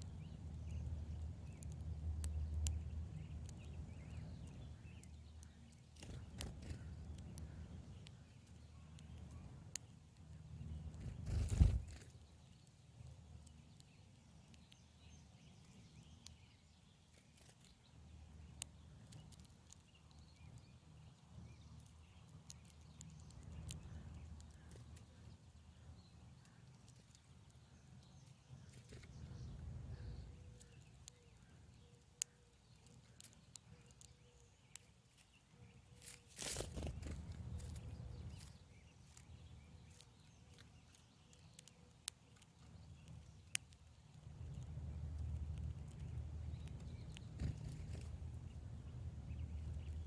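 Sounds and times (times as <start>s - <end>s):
faint low rumble: 0.0s - 12.5s, 17.8s - 33.4s, 36.4s - 41.2s, 42.6s - 50.0s
small clicks: 36.0s - 48.2s.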